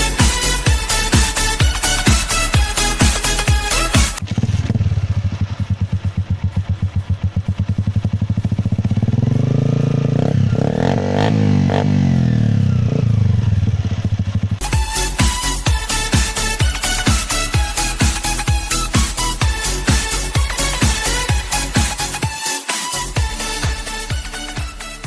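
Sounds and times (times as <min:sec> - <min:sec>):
motorcycle engine idling and revving: 0:00.0 - 0:25.0.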